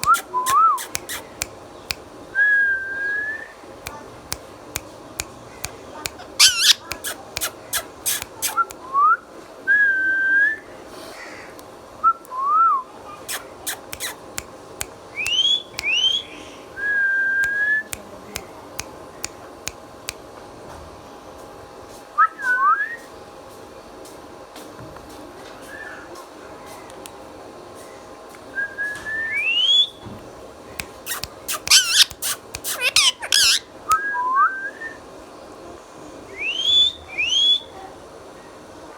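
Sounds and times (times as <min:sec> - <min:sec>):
sharp clicks: 0:00.0 - 0:02.0, 0:13.3 - 0:15.0, 0:30.8 - 0:33.6
parrot whistling: 0:06.2 - 0:08.6, 0:31.0 - 0:34.2.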